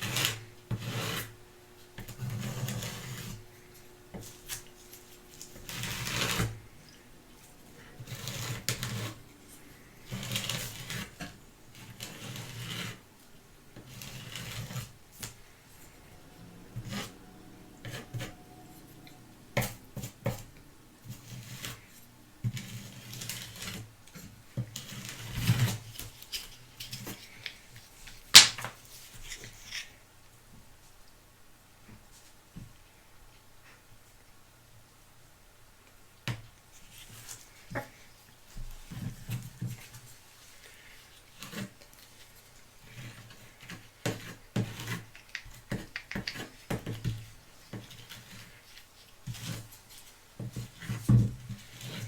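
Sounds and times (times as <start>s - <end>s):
scratchy rubbing strokes: 0.0s - 27.5s.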